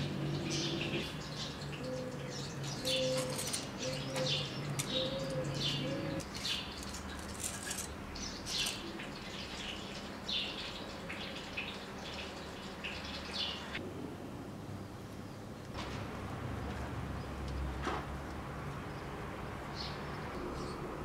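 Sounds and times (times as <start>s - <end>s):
small birds chirping: 0.0s - 13.8s.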